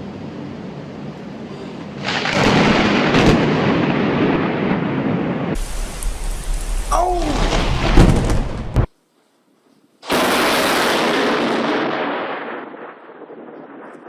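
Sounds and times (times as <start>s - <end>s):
loud crackling thunder: 2.0s - 8.9s, 10.0s - 14.0s.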